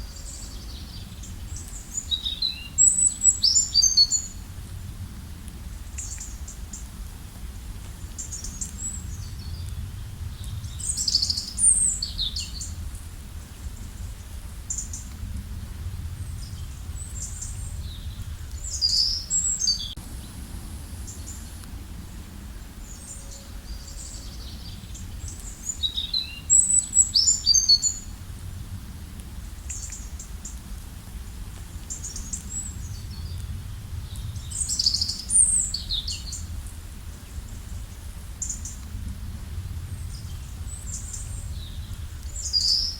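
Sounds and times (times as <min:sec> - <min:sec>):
songbirds chirping: 0:00.0 - 0:04.5, 0:05.5 - 0:30.7, 0:31.6 - 0:39.0, 0:39.6 - 0:42.9
low rushing background: 0:15.1 - 0:25.7, 0:36.5 - 0:42.6.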